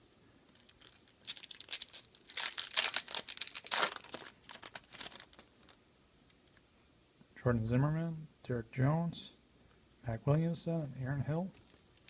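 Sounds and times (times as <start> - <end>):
foil wrapper tearing and crinkling: 0.5 - 5.8.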